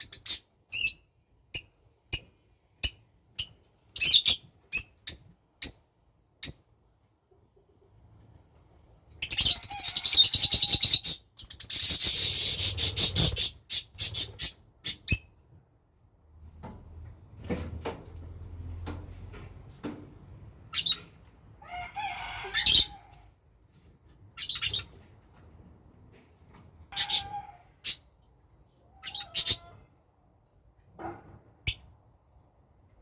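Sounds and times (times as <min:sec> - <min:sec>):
rapid wing-flapping: 0:12.1 - 0:14.4.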